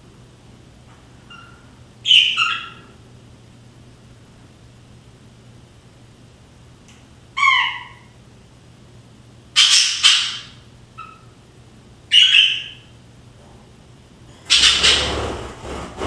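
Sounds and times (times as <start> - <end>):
budgerigars calling: 1.3 - 2.9, 9.6 - 11.3, 12.1 - 12.8, 14.5 - 15.3
faint bird chirp: 1.3 - 2.9, 9.6 - 11.4, 12.1 - 12.9.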